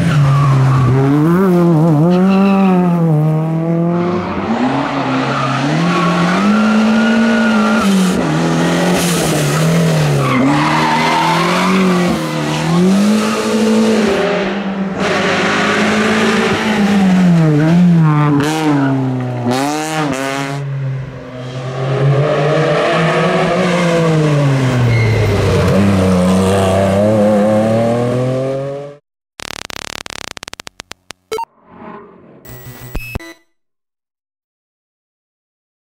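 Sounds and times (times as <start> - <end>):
rally car engine revving: 0.0 - 20.6.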